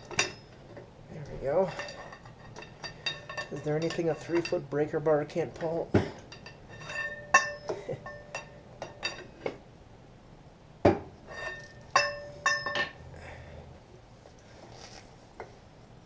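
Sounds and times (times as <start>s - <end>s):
metal tools clinking: 0.0s - 5.0s, 5.6s - 9.4s, 11.3s - 13.0s.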